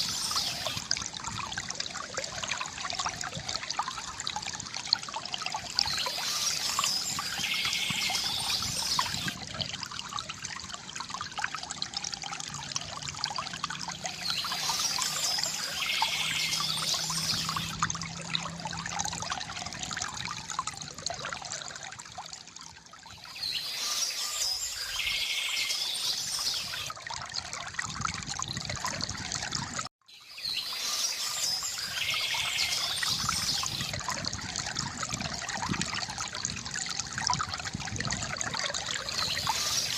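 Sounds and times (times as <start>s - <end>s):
bird chirping song: 0.0s - 0.8s, 5.8s - 9.4s, 14.1s - 17.7s, 23.2s - 26.9s, 30.1s - 33.9s, 39.0s - 39.9s
river water gurgling: 0.0s - 39.9s.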